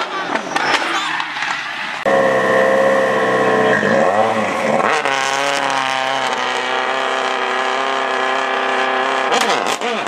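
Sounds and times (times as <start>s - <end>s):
rally car engine at high revs: 0.0s - 10.0s.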